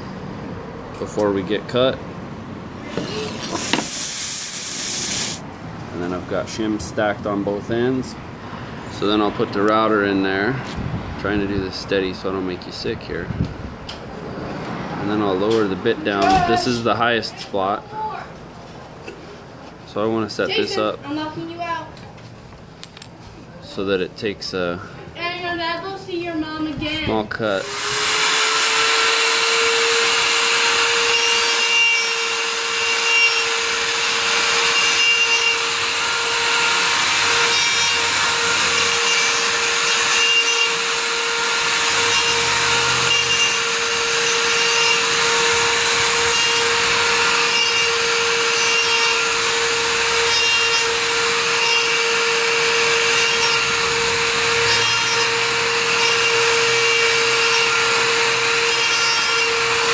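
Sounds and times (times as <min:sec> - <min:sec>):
router cutting wood: 0:02.8 - 0:05.4, 0:27.5 - 0:59.9.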